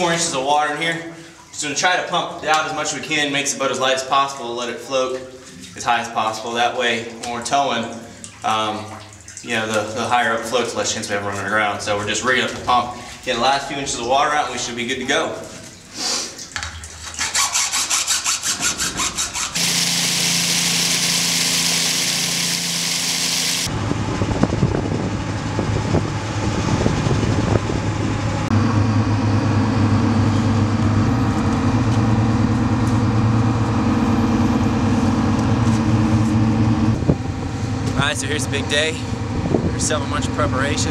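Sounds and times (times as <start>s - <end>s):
low engine drone: 19.6s - 40.9s.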